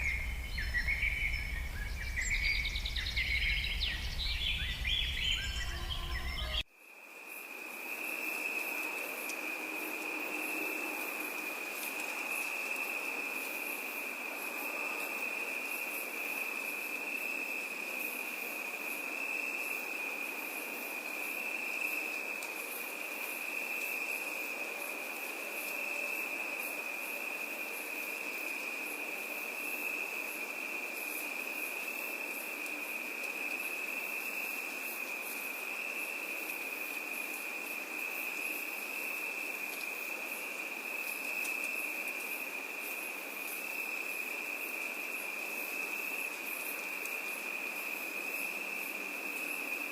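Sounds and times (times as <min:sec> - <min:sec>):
birdsong: 0:00.0 - 0:06.6
crickets trilling: 0:00.0 - 0:49.9.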